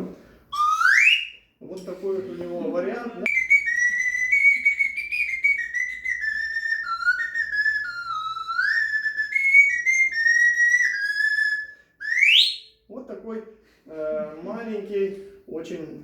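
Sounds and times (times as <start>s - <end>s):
slide whistle playing: 0.5s - 1.5s, 3.3s - 12.8s.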